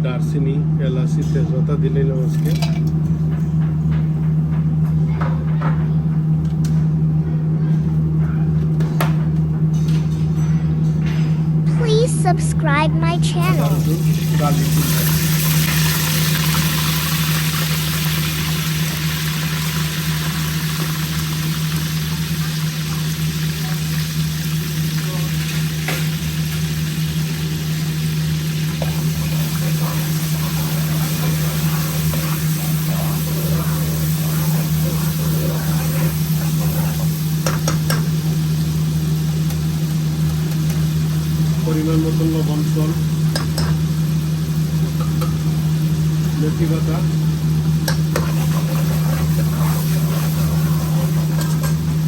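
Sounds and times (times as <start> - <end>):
spices sizzling in hot oil: 13.6 - 52.0.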